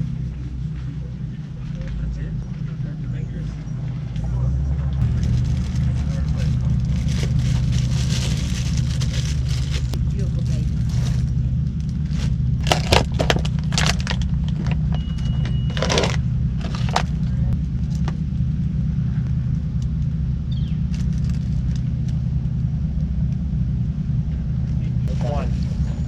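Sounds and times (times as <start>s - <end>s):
low engine rumble: 0.0s - 26.0s
handling clicks and rustles: 5.0s - 18.5s.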